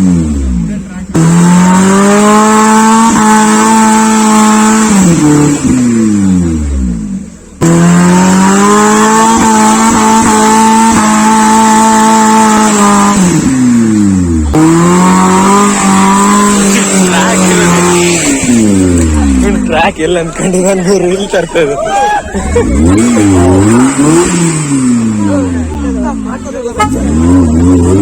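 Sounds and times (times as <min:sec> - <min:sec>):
off-road engine revving: 0:00.0 - 0:28.0.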